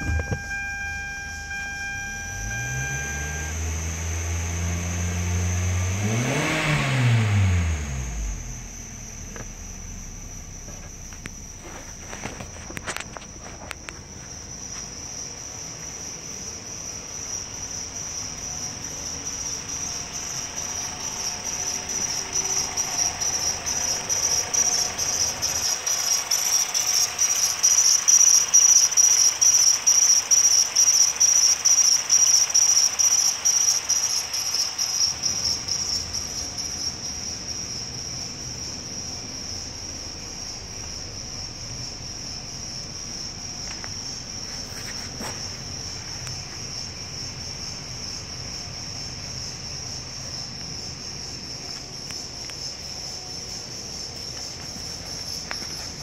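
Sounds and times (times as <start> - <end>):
high-pitched pulsing chirp: 0.0 - 5.7
car engine idling: 0.0 - 56.0.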